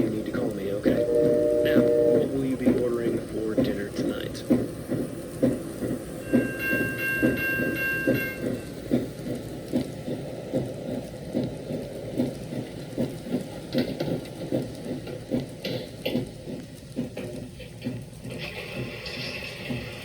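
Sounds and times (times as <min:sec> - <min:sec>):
train wheels clickety-clack: 0:00.0 - 0:20.0
faint horn chord: 0:00.9 - 0:02.4.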